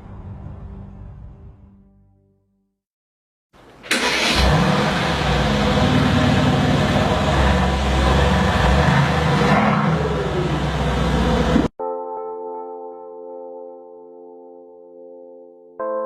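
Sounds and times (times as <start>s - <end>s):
car engine running hard: 3.9s - 11.7s.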